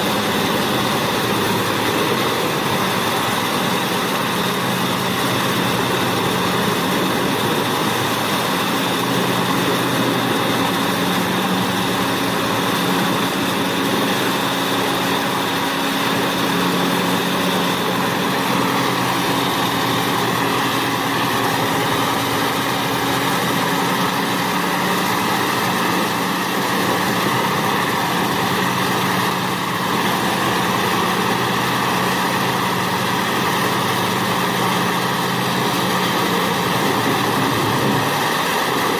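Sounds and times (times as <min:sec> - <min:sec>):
wood chipper running: 0:00.0 - 0:38.9.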